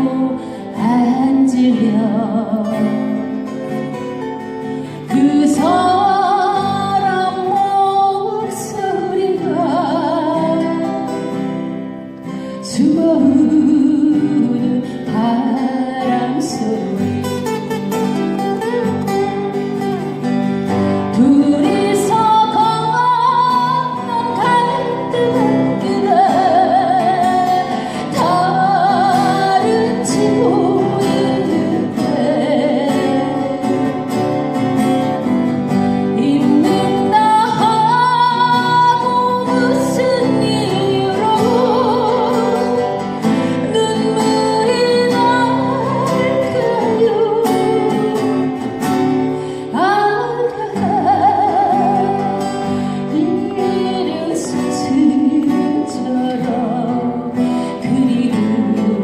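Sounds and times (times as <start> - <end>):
woman singing a ballad: 0.0 - 34.6, 35.2 - 59.0
guitar accompaniment: 0.0 - 59.0.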